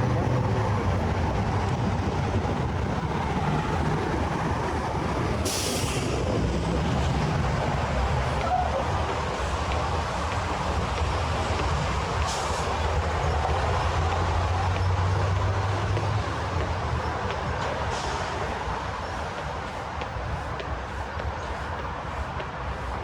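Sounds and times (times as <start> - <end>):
city street traffic rumble: 0.0 - 23.0
short sharp hiss: 5.5 - 6.2.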